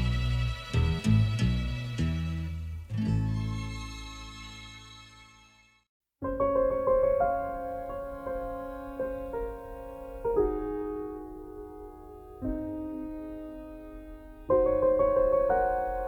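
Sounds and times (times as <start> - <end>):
soft solo piano: 6.2 - 16.0.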